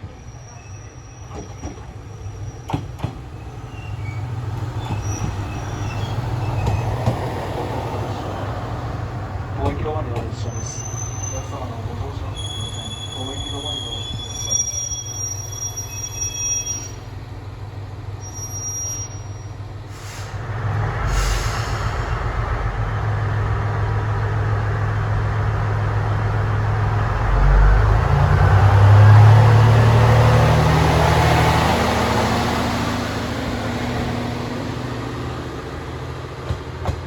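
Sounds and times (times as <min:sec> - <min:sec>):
train wheels squealing on rails: 0:00.0 - 0:08.7, 0:09.6 - 0:17.2, 0:18.1 - 0:20.4
diesel railcar engine drone: 0:00.0 - 0:37.0.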